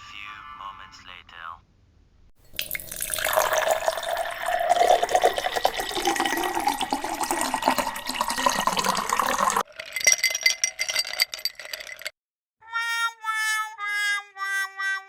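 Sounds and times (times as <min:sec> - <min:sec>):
drink pouring into glass: 0:02.4 - 0:12.1
ice cubes clinking in glass: 0:02.5 - 0:12.1.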